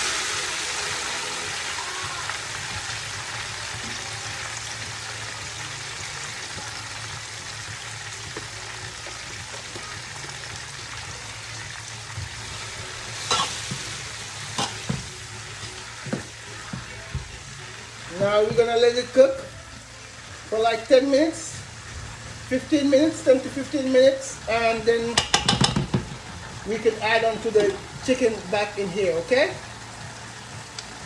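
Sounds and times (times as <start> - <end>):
onions sizzling in hot oil: 0.0 - 31.0
utensil knocking against pot: 25.2 - 26.3.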